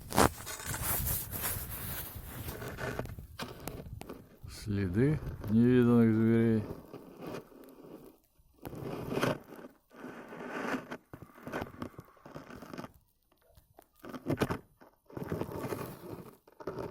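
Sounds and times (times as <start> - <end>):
footsteps crunching on snow: 0.0 - 2.8.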